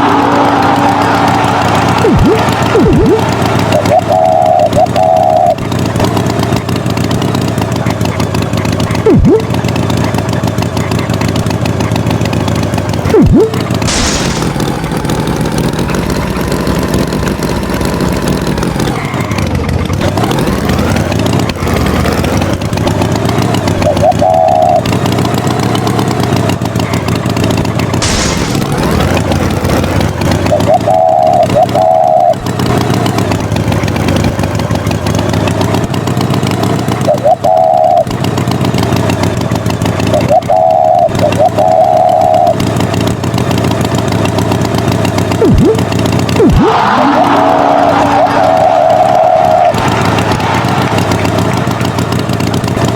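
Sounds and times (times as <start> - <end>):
tractor engine running: 0.0 - 52.9
short beeping tones: 2.0 - 5.6, 9.1 - 9.5, 13.1 - 14.5, 45.4 - 47.2.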